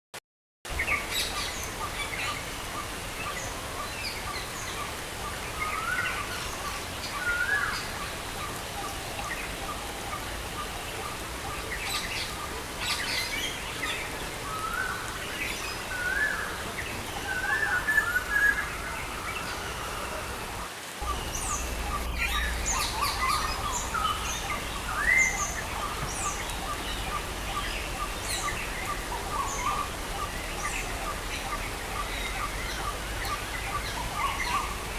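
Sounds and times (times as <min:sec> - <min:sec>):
falling rain hiss: 0:00.7 - 0:34.9
birds chirping and calling: 0:17.3 - 0:34.8.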